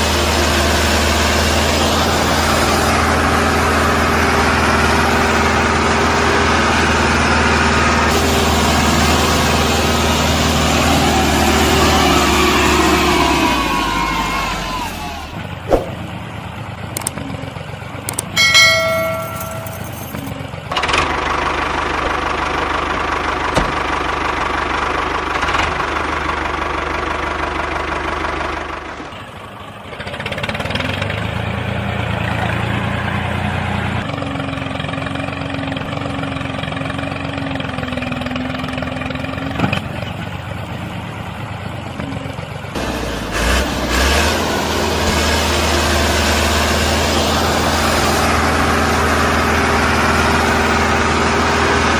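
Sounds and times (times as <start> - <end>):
engine running: 0.0 - 51.9
short ringing tone: 18.4 - 20.3.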